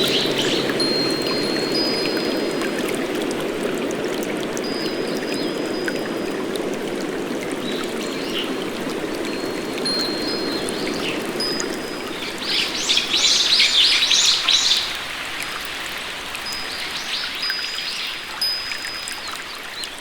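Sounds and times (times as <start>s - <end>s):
high whistling birdsong: 0.0s - 2.7s, 7.5s - 15.0s
rushing rain and water: 0.0s - 20.0s.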